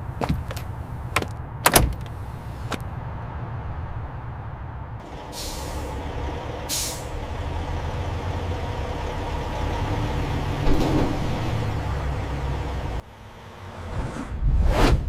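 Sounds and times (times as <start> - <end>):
heavy machinery rumbling: 0.0 - 14.5.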